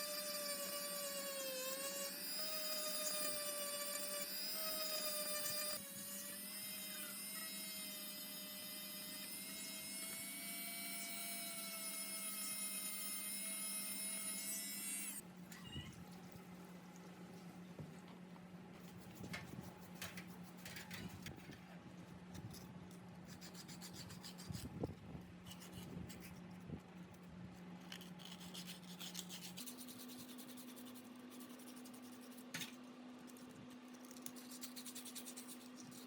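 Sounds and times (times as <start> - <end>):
power tool whining: 0.0 - 15.2.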